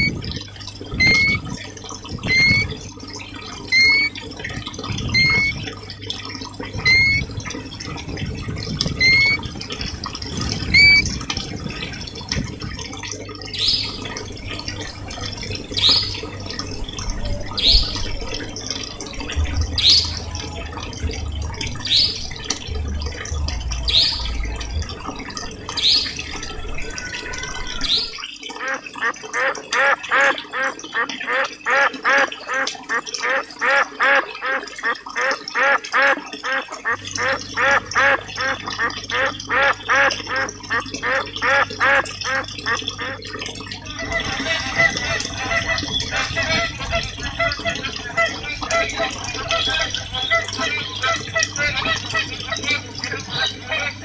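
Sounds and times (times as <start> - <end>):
bird rising chirp: 0.0 - 0.2, 0.9 - 1.4, 2.2 - 2.8, 3.7 - 4.2, 5.1 - 5.6, 6.8 - 7.3, 9.0 - 9.5, 10.7 - 11.1, 13.6 - 28.2
higher louder bird call: 0.0 - 0.2, 0.9 - 1.5, 2.2 - 2.8, 3.7 - 4.2, 5.1 - 5.6, 6.8 - 7.3, 9.0 - 9.5, 10.7 - 11.1, 13.6 - 28.2
running water: 0.0 - 54.0.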